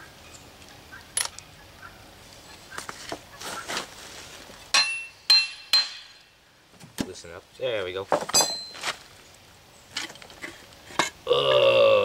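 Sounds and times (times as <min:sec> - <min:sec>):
scraping and handling sounds: 0:02.8 - 0:04.7, 0:08.1 - 0:09.2
metal-on-metal taps with ringing: 0:04.7 - 0:06.3, 0:08.3 - 0:08.8.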